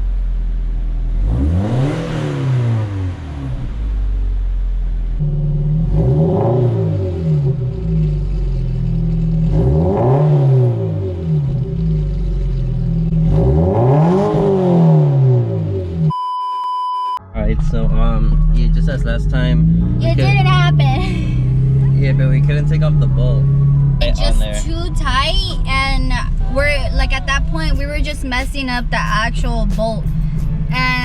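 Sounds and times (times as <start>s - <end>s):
car engine idling and revving: 0.0s - 16.3s, 17.2s - 31.0s.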